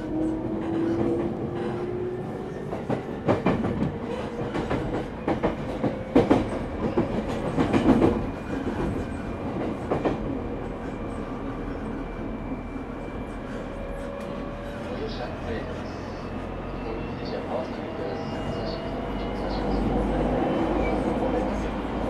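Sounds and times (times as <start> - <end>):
train wheels clacking over rail joints: 2.8 - 9.0.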